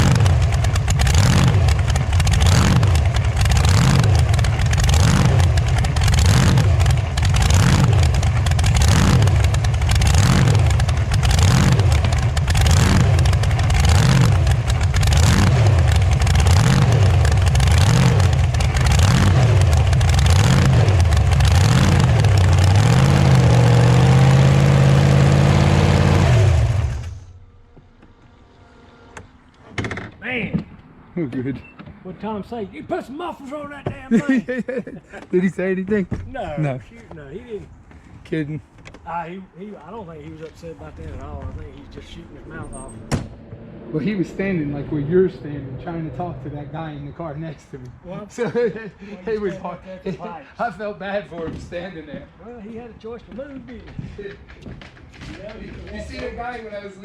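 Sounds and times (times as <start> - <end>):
loud unmuffled engine: 0.0 - 30.0, 39.8 - 48.6.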